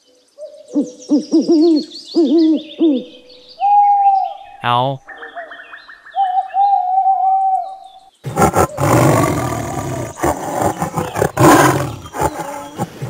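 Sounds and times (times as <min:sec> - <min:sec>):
tiger roaring: 0:08.3 - 0:13.0.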